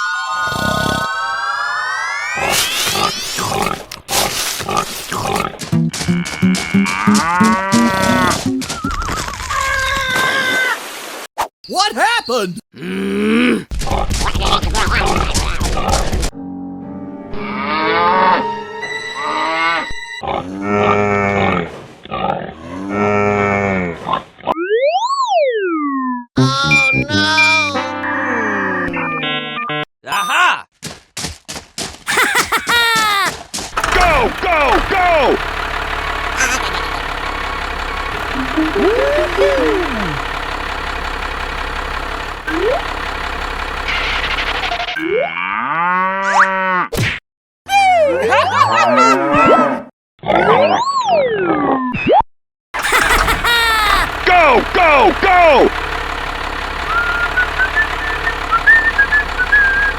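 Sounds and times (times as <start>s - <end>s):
tractor engine running: 7.2s - 8.6s, 32.1s - 32.8s, 33.8s - 45.0s, 52.8s - 59.9s
sliding whistle-like tones: 56.9s - 59.9s.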